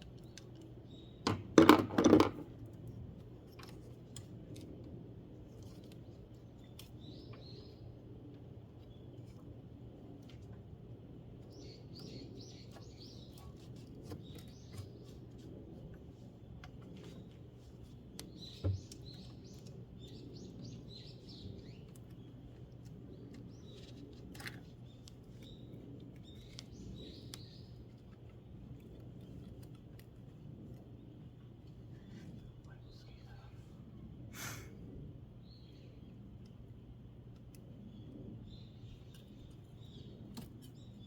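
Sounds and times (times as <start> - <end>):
small birds chirping: 0.0 - 1.2, 5.5 - 8.1, 11.4 - 15.4, 16.4 - 34.2, 35.4 - 41.0
faint low hum: 2.3 - 41.0.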